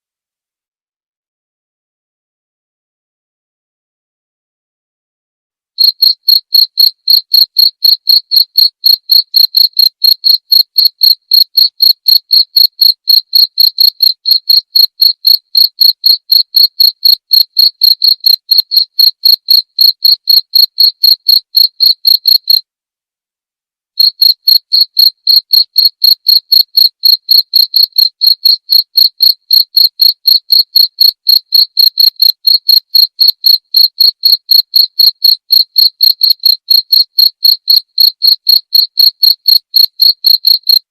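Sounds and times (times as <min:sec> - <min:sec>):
cricket chirping: 0:05.8 - 0:22.6, 0:24.0 - 0:40.9.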